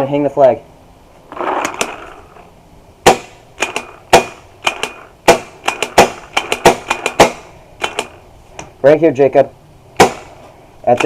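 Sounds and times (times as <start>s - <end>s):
rustling noise: 1.1s - 2.5s
paintball markers firing: 3.1s - 8.2s.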